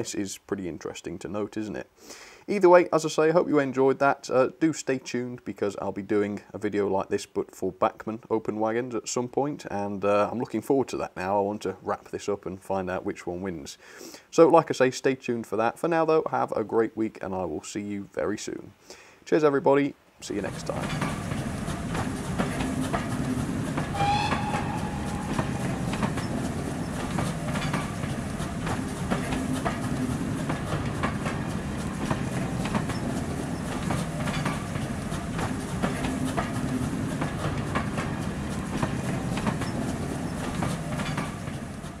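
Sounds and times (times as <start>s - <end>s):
train wheels clickety-clack: 20.4s - 42.0s
train whistle: 23.9s - 26.4s.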